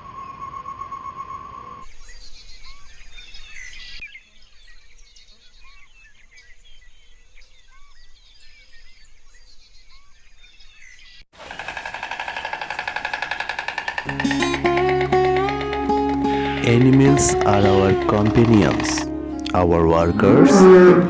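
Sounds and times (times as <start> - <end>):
outdoor background noise: 0.0 - 19.1
guitar music: 14.1 - 21.0.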